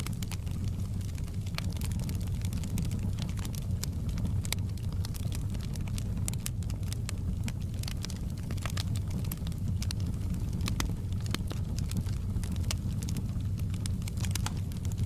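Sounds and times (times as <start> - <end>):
fire crackling in a fireplace: 0.0 - 15.0.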